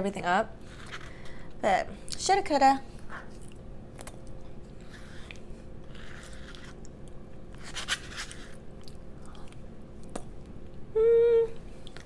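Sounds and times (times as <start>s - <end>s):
soft chewing: 3.0s - 10.8s.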